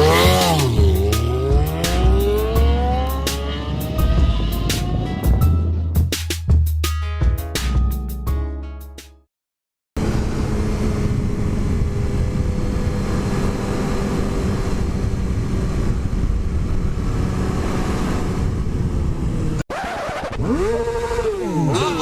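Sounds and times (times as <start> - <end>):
motorcycle engine running: 0.0 - 5.5
wind rush on microphone: 10.0 - 19.6.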